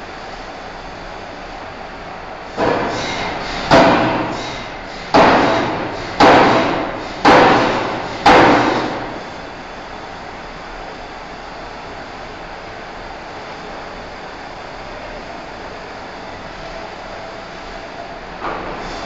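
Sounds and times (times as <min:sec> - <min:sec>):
forging hammer striking steel: 0:02.6 - 0:09.1.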